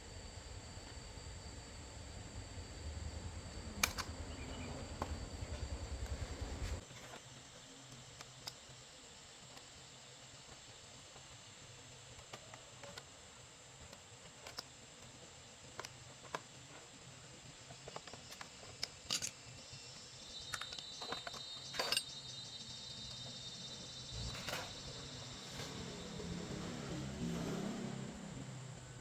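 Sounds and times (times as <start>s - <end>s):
faint high whine: 0.0s - 29.0s.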